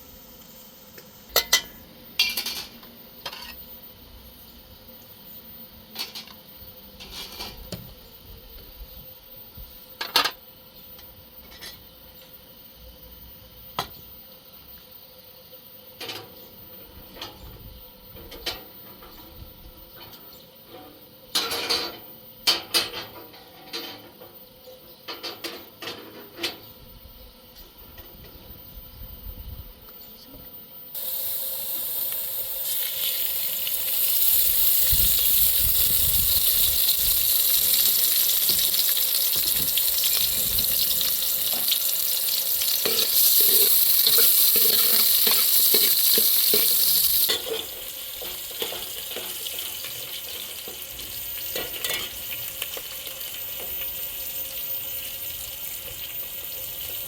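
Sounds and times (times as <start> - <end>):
food sizzling in hot oil: 0.0 - 4.6, 31.0 - 57.0.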